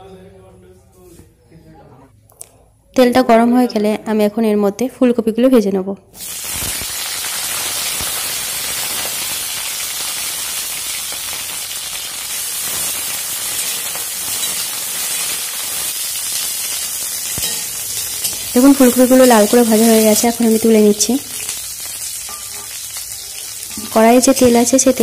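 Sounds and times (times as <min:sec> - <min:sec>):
vegetables sizzling in hot oil: 0:06.2 - 0:25.0.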